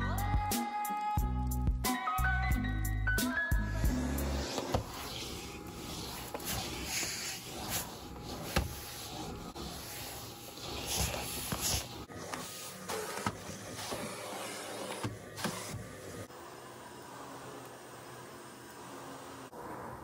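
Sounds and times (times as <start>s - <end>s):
rubbing and rustling: 4.2s - 16.2s.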